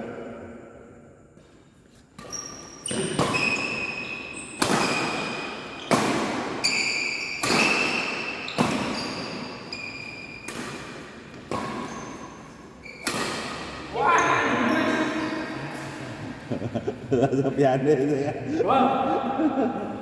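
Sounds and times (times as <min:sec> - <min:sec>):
sneakers squeaking on court: 0:02.1 - 0:16.0
rackets hitting shuttlecock: 0:02.2 - 0:16.0.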